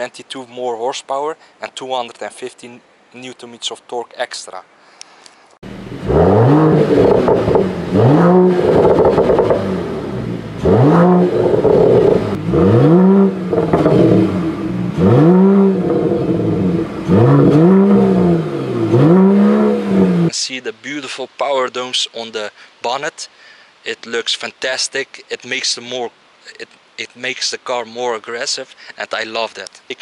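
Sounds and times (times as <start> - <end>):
car engine revving: 5.6 - 20.3.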